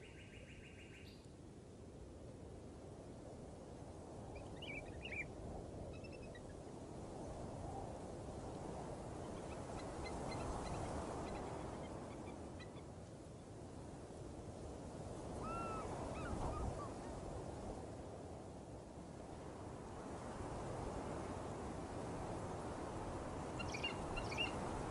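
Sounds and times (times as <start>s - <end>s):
bird-like calls: 15.4s - 17.0s, 23.6s - 24.6s.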